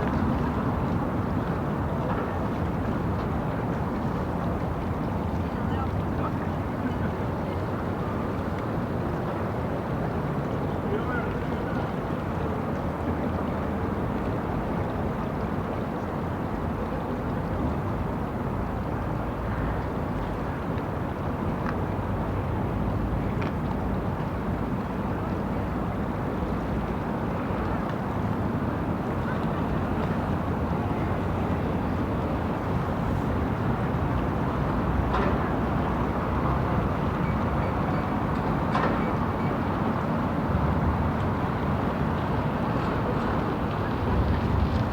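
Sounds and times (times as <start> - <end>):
distant traffic rumble: 41.8 - 44.9.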